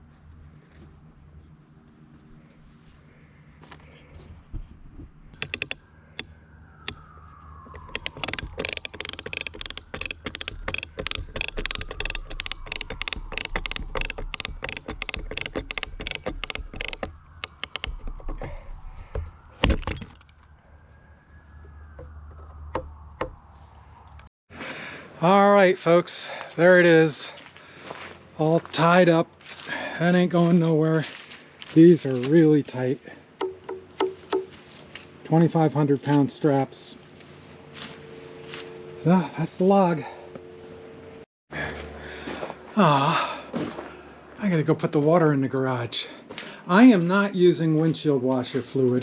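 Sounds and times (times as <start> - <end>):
ratchet strap clicking: 5.4 - 7.1, 7.7 - 18.5.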